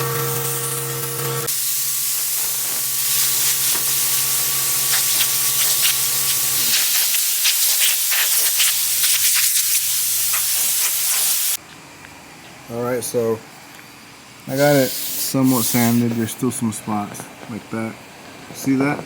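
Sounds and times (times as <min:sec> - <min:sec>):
orbital sander hissing: 0:00.0 - 0:11.6, 0:14.5 - 0:16.4.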